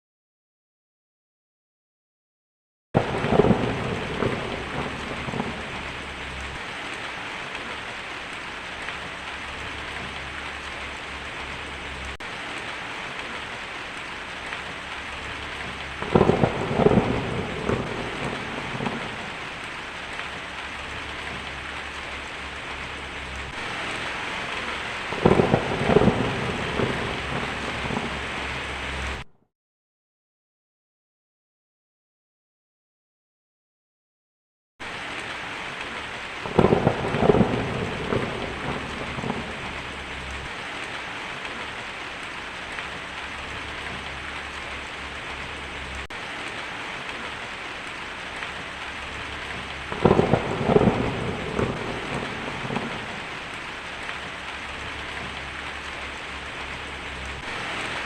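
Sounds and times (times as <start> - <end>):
thunder rolling: 3.0 - 6.7, 14.6 - 20.1, 20.7 - 29.2, 36.4 - 40.5, 49.0 - 53.6, 54.2 - 58.0
heavy rain on a tin roof: 3.0 - 29.3, 34.8 - 58.0.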